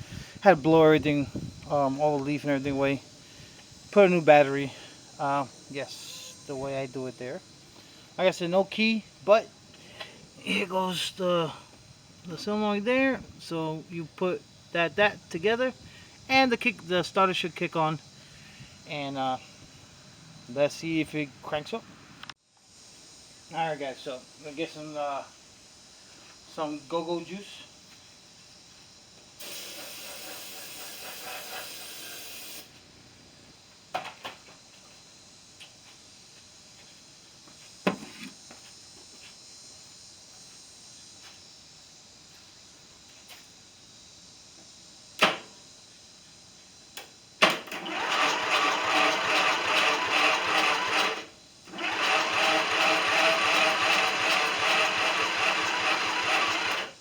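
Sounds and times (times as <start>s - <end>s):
aerosol spray hiss: 27.5s - 32.9s
starter motor cranking engine: 47.5s - 57.0s.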